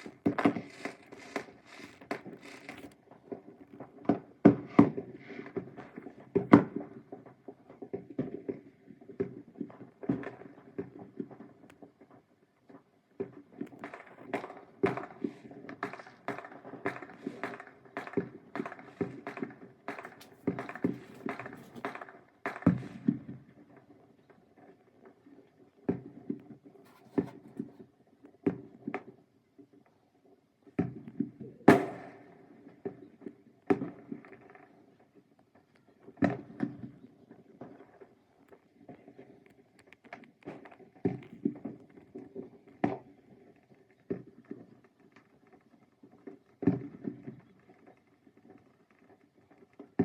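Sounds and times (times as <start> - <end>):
fireworks bangs and pops: 0.0 - 50.0.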